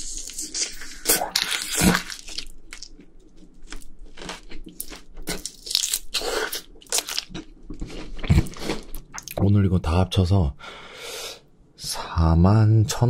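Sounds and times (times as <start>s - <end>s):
crunchy chewing of fried chicken: 0.0s - 9.3s.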